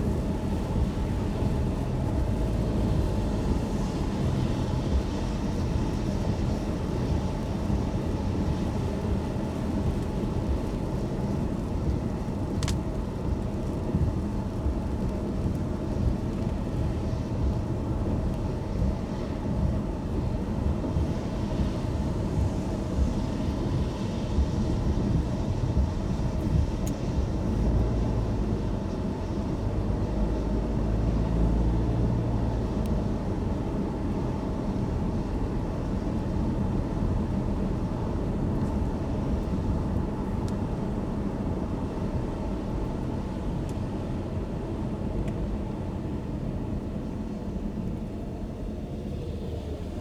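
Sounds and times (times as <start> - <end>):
car tyres on wet road: 0.0 - 50.0
rain: 0.0 - 50.0
faint ticks: 12.6 - 12.9.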